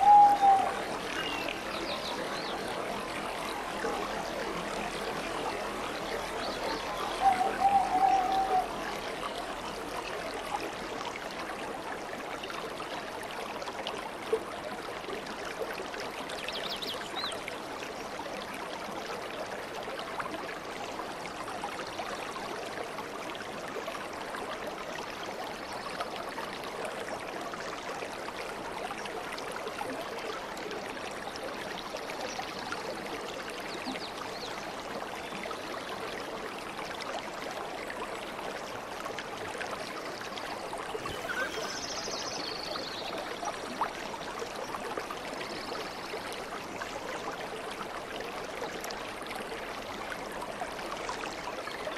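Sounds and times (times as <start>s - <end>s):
aquarium water bubbling: 34.8s - 51.9s.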